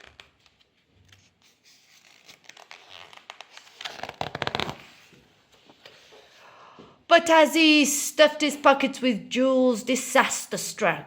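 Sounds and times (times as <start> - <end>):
paper page rustling: 0.0 - 6.2.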